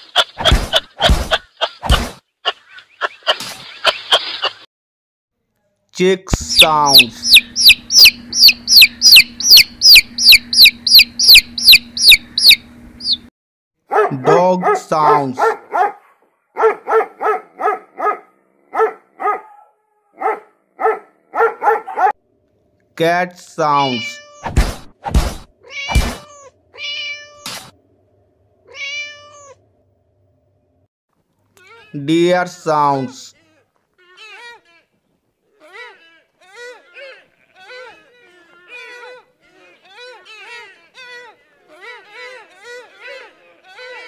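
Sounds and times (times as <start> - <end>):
sharp thumps: 0.4 - 2.2, 24.4 - 26.3
chick peeping: 6.4 - 13.3
cat meowing: 23.8 - 24.4, 25.6 - 27.5, 28.7 - 29.6.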